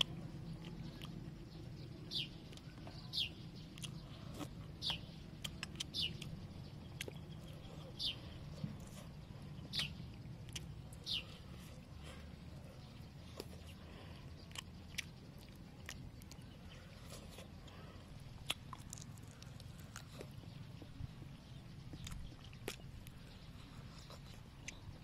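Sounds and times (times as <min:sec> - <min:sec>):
person chewing fried chicken: 0:00.0 - 0:01.6, 0:02.4 - 0:25.0
bird chirping: 0:00.0 - 0:25.0.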